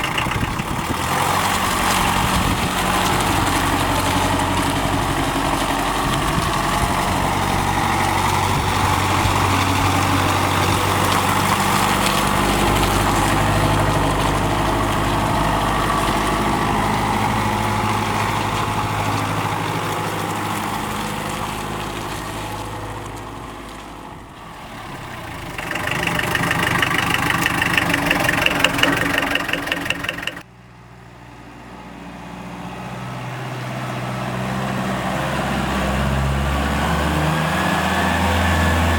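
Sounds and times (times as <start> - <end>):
diesel engine clatter: 0.0 - 30.6.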